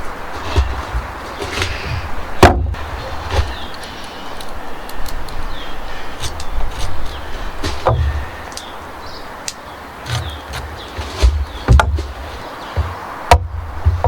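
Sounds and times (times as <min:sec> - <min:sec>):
wooden knocking: 0:00.4 - 0:03.8, 0:07.6 - 0:08.4, 0:10.0 - 0:14.0.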